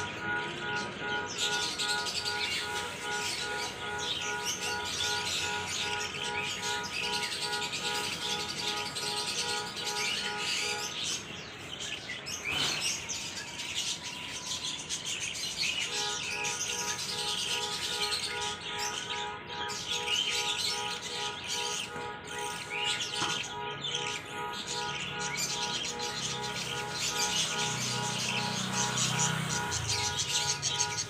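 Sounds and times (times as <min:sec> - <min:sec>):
many birds chirping: 0:00.0 - 0:31.0.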